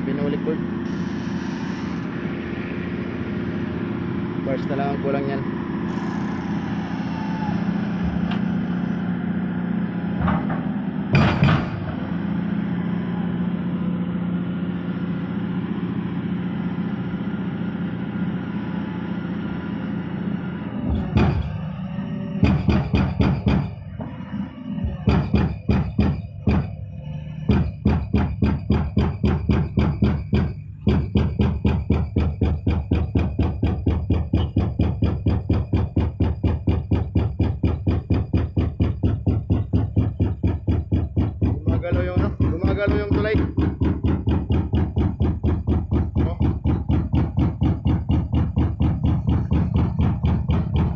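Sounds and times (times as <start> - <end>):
sustained drone: 0.0 - 10.2, 18.0 - 28.5
percussive beat: 27.5 - 50.9.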